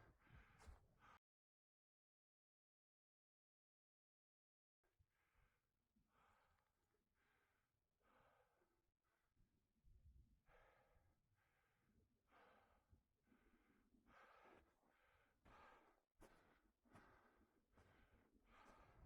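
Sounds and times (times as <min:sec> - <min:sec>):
heavy rhythmic breathing: 0:10.5 - 0:19.0.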